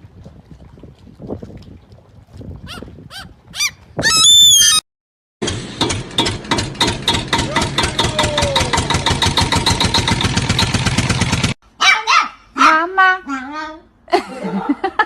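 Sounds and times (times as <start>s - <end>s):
engine running: 5.4s - 11.6s.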